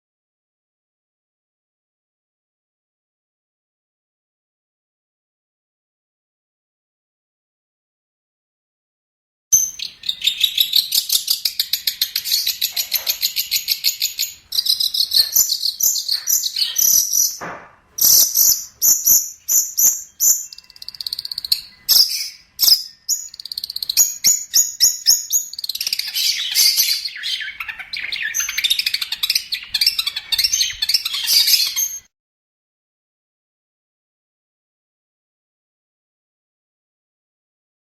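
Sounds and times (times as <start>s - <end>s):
bird chattering song: 9.5s - 32.1s.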